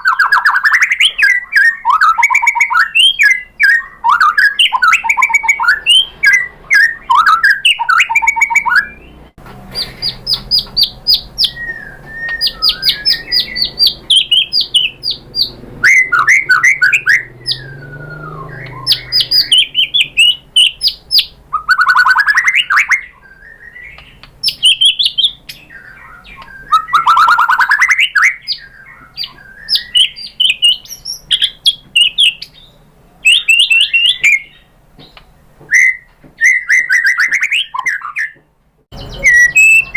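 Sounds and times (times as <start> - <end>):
songbird singing varied song: 0.0 - 39.9.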